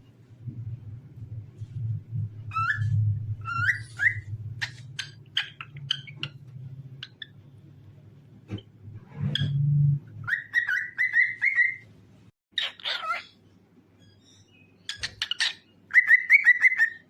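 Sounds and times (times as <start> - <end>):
steady low hum: 0.0 - 10.3
cockatiel whistling: 2.5 - 4.8, 10.2 - 11.8, 15.4 - 17.0
bird chirps: 2.5 - 7.4, 10.2 - 11.9, 14.0 - 17.0.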